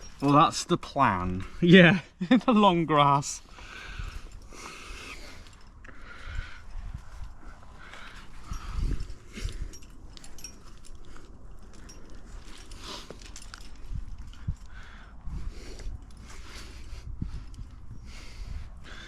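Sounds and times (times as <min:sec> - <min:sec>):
person breathing hard: 0:03.4 - 0:09.9, 0:14.4 - 0:19.0.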